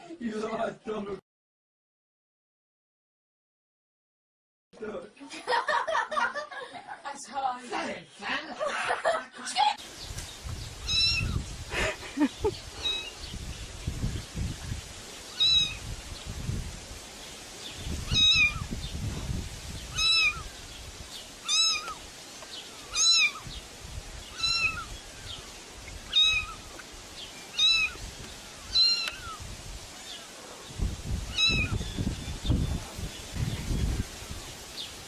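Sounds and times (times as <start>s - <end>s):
cat meowing: 10.8s - 11.4s, 12.8s - 13.1s, 15.4s - 15.8s, 18.1s - 18.7s, 20.0s - 20.5s, 21.4s - 22.0s, 22.9s - 23.5s, 24.3s - 24.9s, 26.1s - 26.6s, 27.5s - 28.0s, 28.7s - 29.4s, 31.3s - 31.8s.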